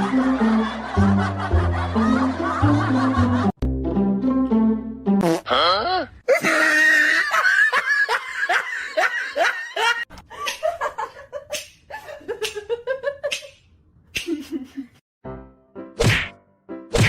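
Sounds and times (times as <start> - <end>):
person laughing: 6.3 - 11.3, 14.2 - 15.0.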